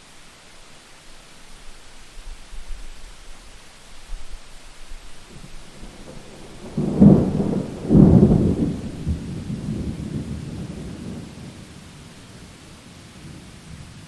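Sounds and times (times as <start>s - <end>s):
steady rain hissing: 0.0s - 14.0s
thunder rumbling: 5.3s - 14.0s.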